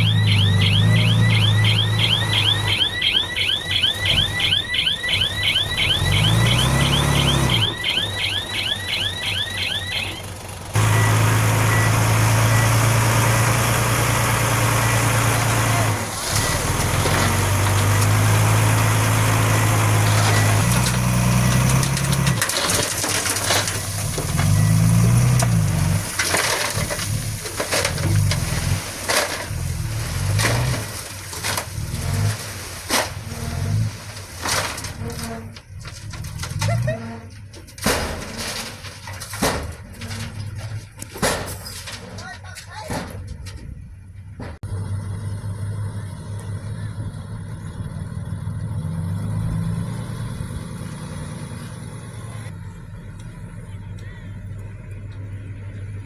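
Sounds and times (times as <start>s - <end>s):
metal clanks and gravel crunches: 0.0s - 44.7s, 50.0s - 56.0s
bulldozer diesel engine running: 0.0s - 56.0s.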